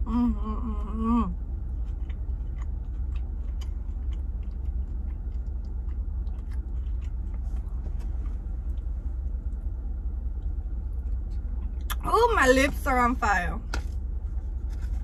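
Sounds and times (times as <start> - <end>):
vehicle cabin hum: 0.0 - 15.0
person chewing food: 1.4 - 12.0.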